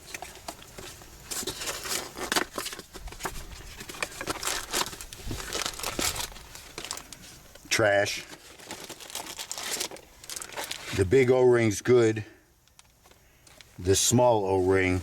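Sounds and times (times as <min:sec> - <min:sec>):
packaging crinkling and tearing: 0:00.0 - 0:07.4, 0:08.0 - 0:11.0.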